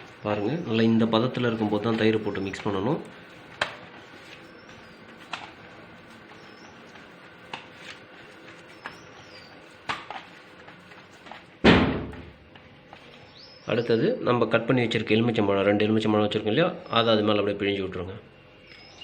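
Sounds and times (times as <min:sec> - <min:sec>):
faint bird chirps: 0:18.5 - 0:19.0.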